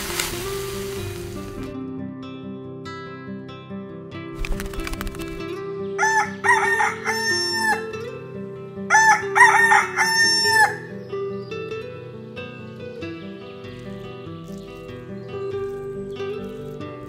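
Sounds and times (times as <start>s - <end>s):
background music: 0.0s - 17.0s
rooster crowing: 6.0s - 8.1s, 8.9s - 11.1s.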